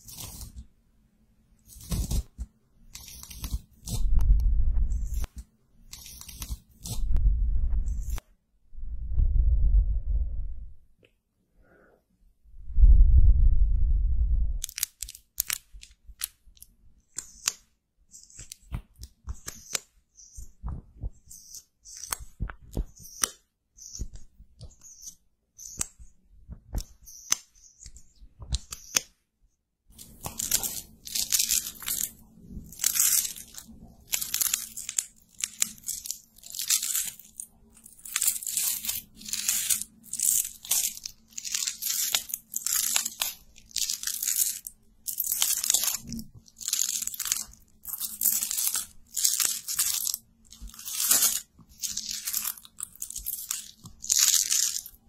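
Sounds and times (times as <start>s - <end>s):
crackling and scratching of makeup: 0.0s - 0.8s, 1.5s - 8.3s, 14.6s - 29.2s, 29.9s - 55.0s.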